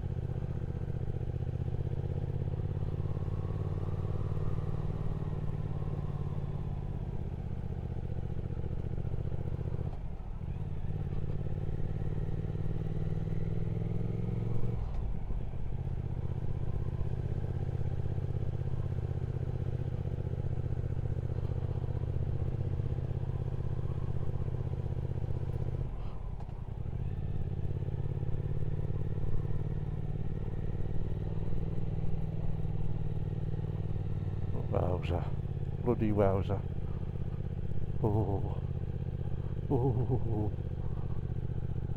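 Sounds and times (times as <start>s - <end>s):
motorcycle engine running: 0.0s - 14.7s, 15.4s - 41.9s.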